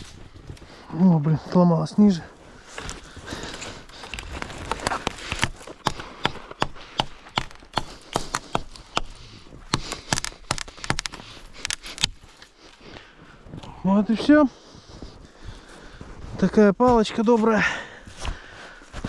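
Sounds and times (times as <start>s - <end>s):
knife chopping wooden stick: 5.4s - 11.2s.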